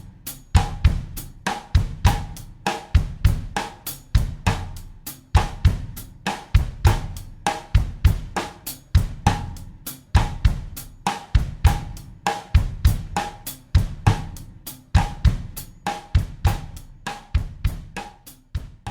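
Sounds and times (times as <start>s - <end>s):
drum kit groove: 0.0s - 18.9s.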